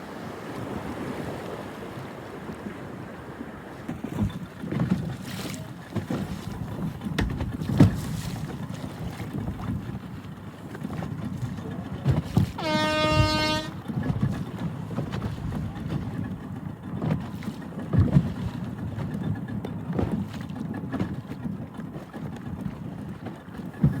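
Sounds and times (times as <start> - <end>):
water around a boat: 0.0 - 24.0
wind: 0.0 - 24.0
horn blast: 12.6 - 13.8.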